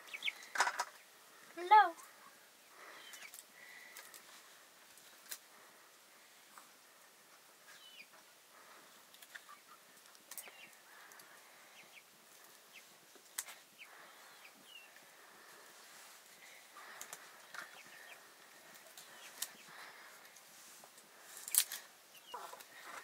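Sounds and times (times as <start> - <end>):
faint bird calls: 2.0 - 4.1, 16.4 - 20.3, 22.1 - 23.0.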